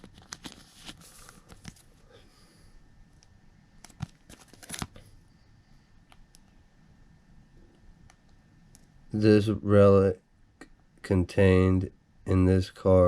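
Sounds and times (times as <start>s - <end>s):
foil wrapper crinkling: 3.9s - 5.0s.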